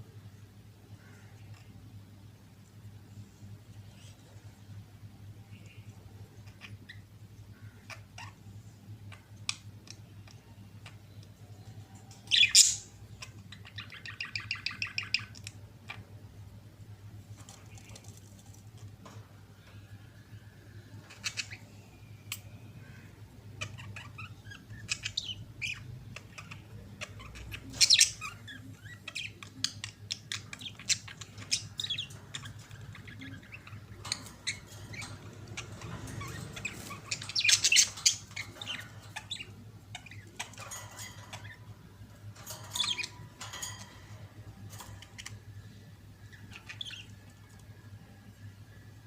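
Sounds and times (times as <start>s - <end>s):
steady low hum: 0.0s - 49.0s
budgerigars chattering: 12.3s - 16.1s, 22.9s - 47.2s.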